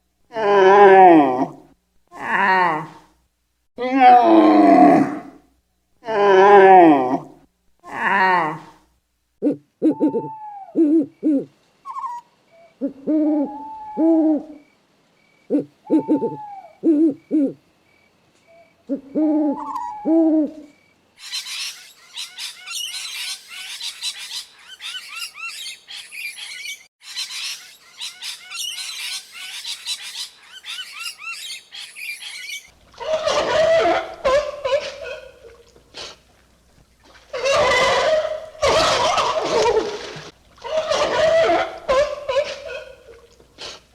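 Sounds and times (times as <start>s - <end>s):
owl hooting: 9.4s - 14.6s, 15.5s - 17.6s, 18.5s - 36.2s, 37.3s - 43.8s
parrots screeching and chattering: 21.2s - 36.2s, 37.3s - 40.0s, 40.6s - 43.9s
seal calling: 32.0s - 36.2s, 37.1s - 43.9s.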